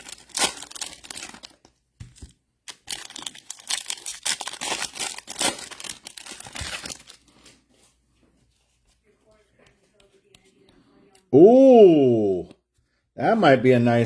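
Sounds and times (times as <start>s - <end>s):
foil wrappers tearing and crinkling: 0.0s - 7.6s.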